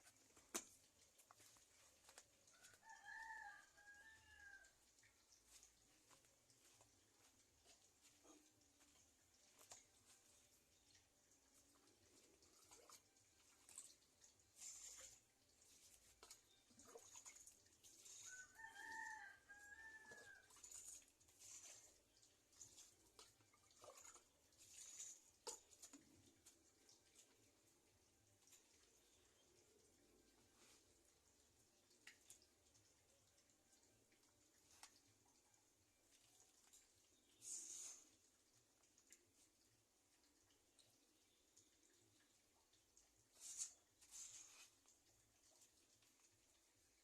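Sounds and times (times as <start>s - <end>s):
faint rooster crowing: 2.5s - 4.9s, 18.0s - 20.6s.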